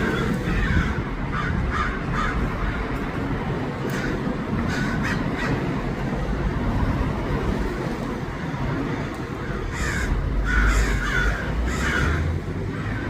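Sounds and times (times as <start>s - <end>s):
crows cawing: 0.0s - 2.9s, 3.9s - 5.7s, 9.4s - 13.0s
steady low rumble: 0.0s - 13.0s.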